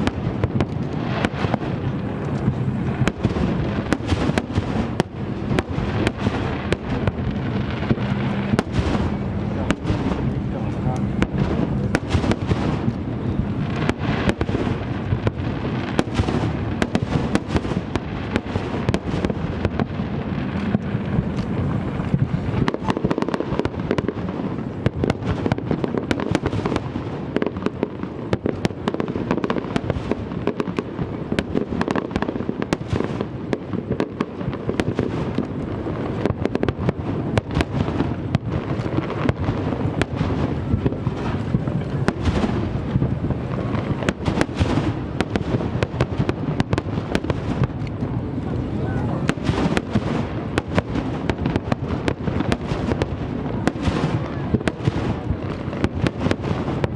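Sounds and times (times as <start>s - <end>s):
low rumble: 0.0s - 15.9s
fireworks booming and crackling: 0.0s - 56.9s.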